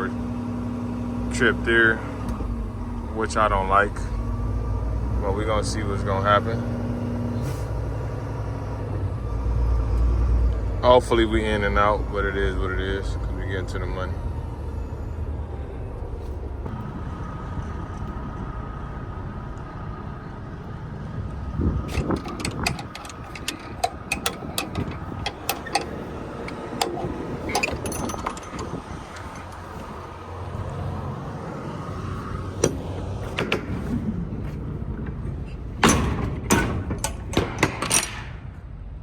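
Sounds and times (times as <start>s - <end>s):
diesel truck engine running: 0.0s - 37.8s
sharp clicks and clanks: 21.8s - 30.8s, 35.0s - 38.4s.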